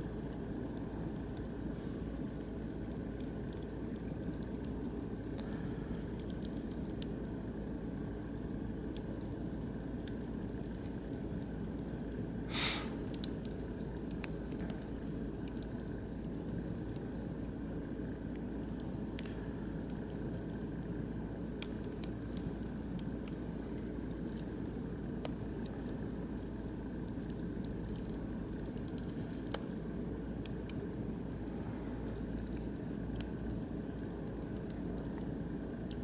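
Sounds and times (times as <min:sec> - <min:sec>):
logs crackling and popping in fire: 0:00.0 - 0:36.0
low fire rush: 0:12.5 - 0:13.2.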